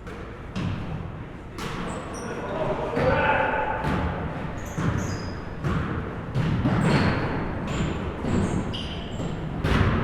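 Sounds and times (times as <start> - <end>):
basketball bouncing on floor: 3.8 - 8.5, 9.2 - 10.0.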